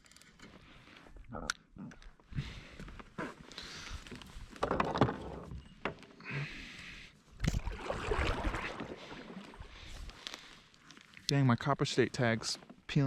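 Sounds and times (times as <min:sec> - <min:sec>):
water splashing around kayak: 0:07.4 - 0:10.6.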